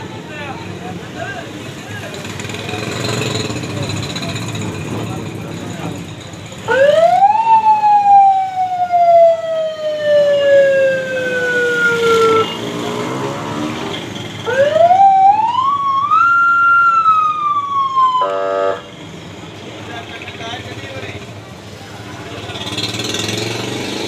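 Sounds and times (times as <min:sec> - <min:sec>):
siren wailing: 0:06.7 - 0:12.6, 0:14.4 - 0:18.8.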